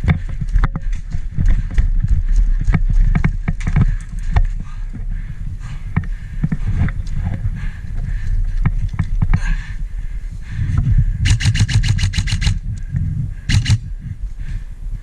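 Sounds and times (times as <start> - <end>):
airsoft gun firing: 11.3 - 12.6, 13.5 - 13.8.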